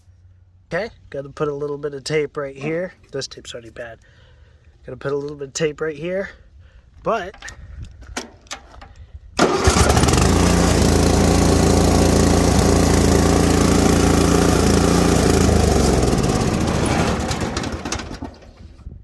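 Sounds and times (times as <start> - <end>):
riding lawn mower engine: 9.4 - 18.8.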